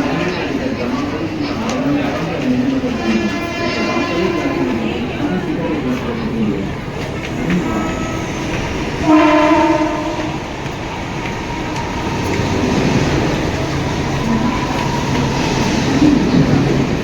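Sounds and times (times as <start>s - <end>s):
electric train rumbling: 0.0s - 17.0s
train horn: 2.9s - 5.1s, 9.0s - 10.5s.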